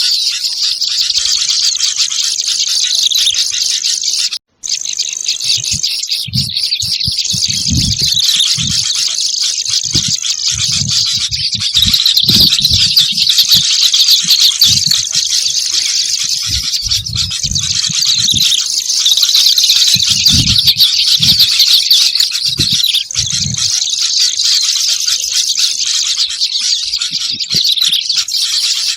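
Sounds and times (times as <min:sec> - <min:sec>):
songbirds chirping and chattering: 0:00.0 - 0:28.9
low thumps: 0:05.5 - 0:18.6.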